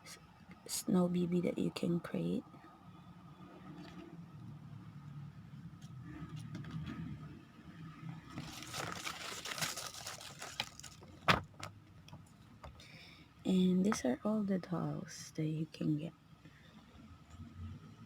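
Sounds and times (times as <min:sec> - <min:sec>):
paper rustling: 0:08.4 - 0:11.2.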